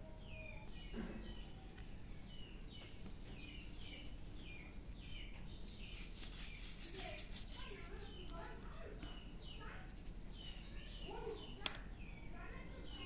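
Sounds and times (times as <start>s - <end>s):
bird chirping: 0.0s - 13.0s
scratchy rustle: 2.8s - 8.8s, 9.7s - 11.1s.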